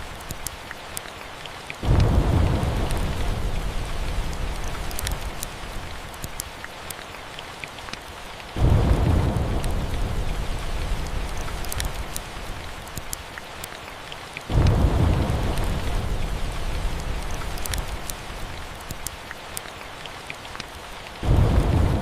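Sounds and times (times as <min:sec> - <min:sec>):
steady rain: 0:00.0 - 0:22.0
wood fire crackling: 0:00.0 - 0:22.0
rolling thunder: 0:01.8 - 0:05.0, 0:08.6 - 0:11.7, 0:14.5 - 0:18.4, 0:21.2 - 0:22.0.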